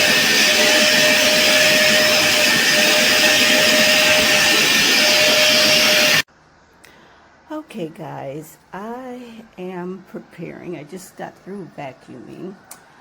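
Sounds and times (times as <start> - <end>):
vacuum cleaner running: 0.0 - 6.3.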